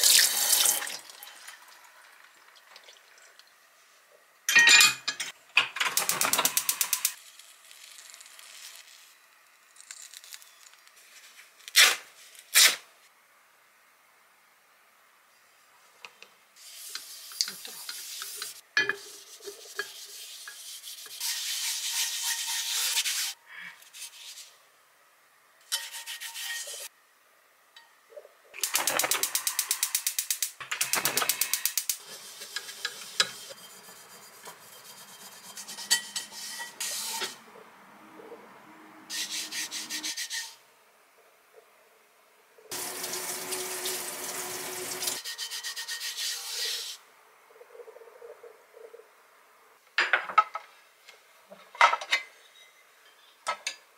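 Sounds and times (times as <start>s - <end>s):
paper towel rubbing on pan: 19.0s - 24.5s, 32.0s - 37.4s.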